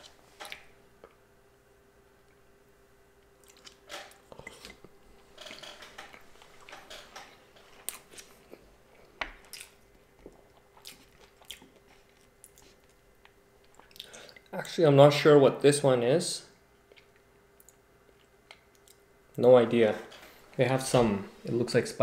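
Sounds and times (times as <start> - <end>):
person chewing food: 3.2 - 14.5, 16.8 - 19.1.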